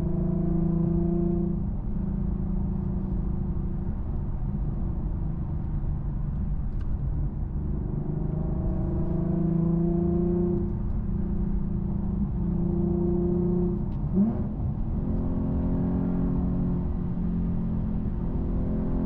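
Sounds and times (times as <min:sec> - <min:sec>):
car engine droning: 0:00.0 - 0:19.0.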